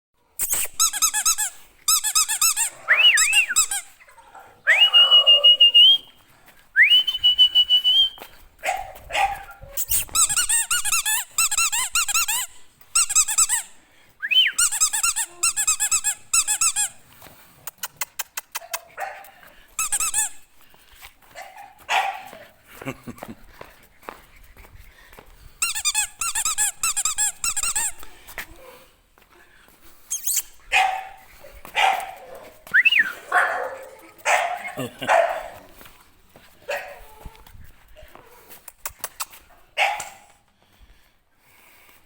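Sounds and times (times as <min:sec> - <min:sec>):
dog whining and squealing: 0:00.4 - 0:06.0, 0:09.2 - 0:13.6, 0:14.5 - 0:17.0, 0:30.1 - 0:30.8.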